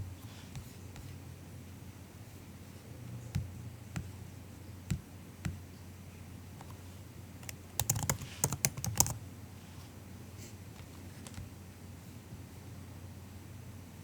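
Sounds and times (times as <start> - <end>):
soft keyboard typing: 7.4 - 9.2.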